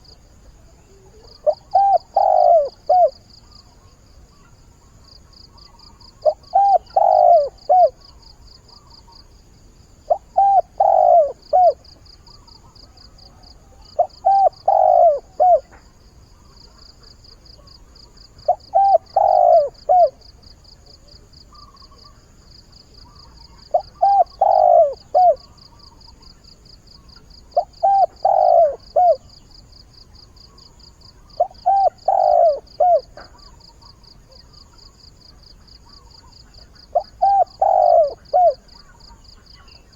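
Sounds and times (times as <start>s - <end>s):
dove cooing: 0.0s - 4.5s, 5.6s - 8.9s, 10.1s - 15.9s, 16.5s - 20.4s, 23.0s - 26.1s, 27.5s - 29.4s, 31.2s - 39.9s.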